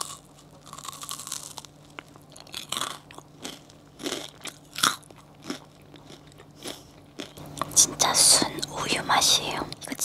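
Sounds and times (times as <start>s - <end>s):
crunchy biting and chewing: 0.0s - 8.0s.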